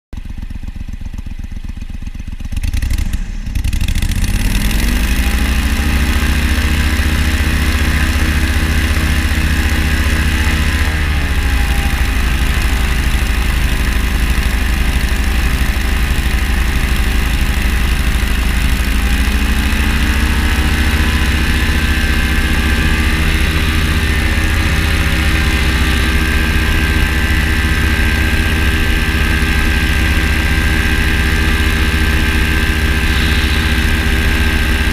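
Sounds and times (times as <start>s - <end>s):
engine idling: 0.2s - 34.9s
engine starter cranking: 7.7s - 34.9s.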